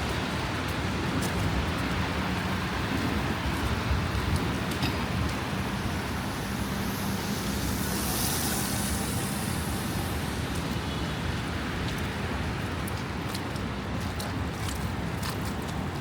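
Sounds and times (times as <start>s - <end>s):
city street traffic: 0.0s - 16.0s
wind rumbling on microphone: 0.0s - 16.0s
high hiss: 5.6s - 11.4s.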